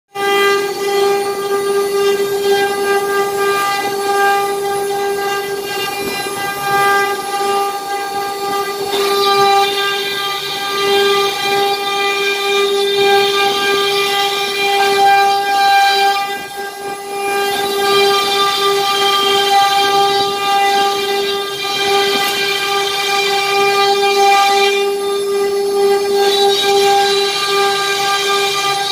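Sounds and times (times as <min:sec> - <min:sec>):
router spindle high whine: 0:00.1 - 0:28.9
hissy cutting noise: 0:00.3 - 0:28.9.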